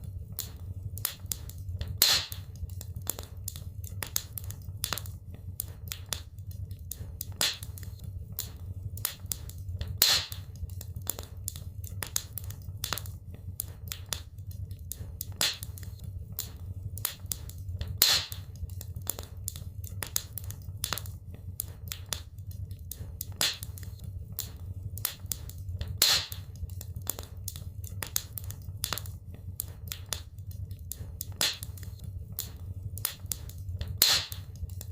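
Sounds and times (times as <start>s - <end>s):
fire low rumble: 0.0s - 34.9s
wood fire crackling: 0.0s - 34.9s.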